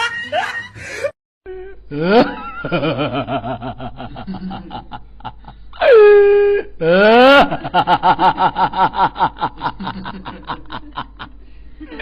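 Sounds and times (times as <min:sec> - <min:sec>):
person laughing: 0:00.0 - 0:12.0.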